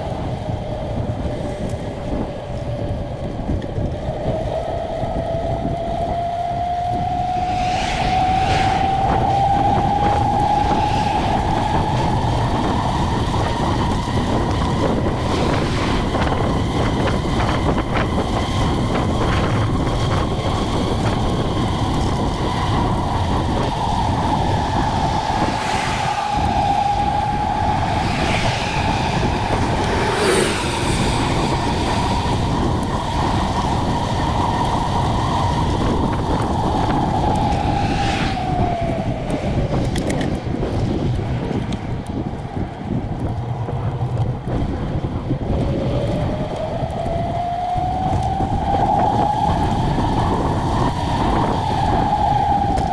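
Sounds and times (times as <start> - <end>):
wind on microphone: 0.0 - 52.9
road noise: 5.7 - 52.9
high whine: 5.9 - 20.2, 22.0 - 40.1.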